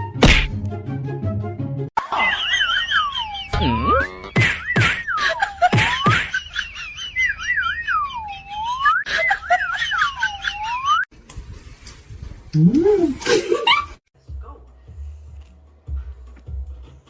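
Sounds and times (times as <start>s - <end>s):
swooping whistling: 2.9s - 9.3s.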